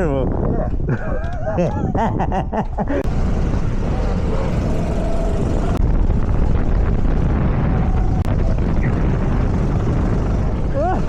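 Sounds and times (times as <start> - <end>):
wind buffeting microphone: 0.0 - 11.0
go-kart engine running: 3.0 - 11.0.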